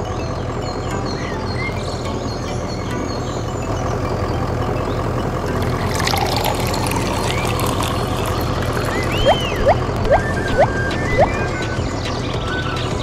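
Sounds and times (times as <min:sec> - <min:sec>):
noise wash: 0:05.0 - 0:12.0
short bird-like chirps: 0:08.9 - 0:11.8.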